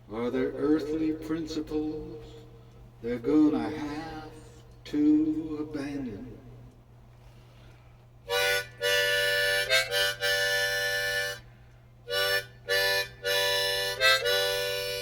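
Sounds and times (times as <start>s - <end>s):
faint steady hum: 0.0s - 15.0s
harmonica chords: 8.2s - 15.0s.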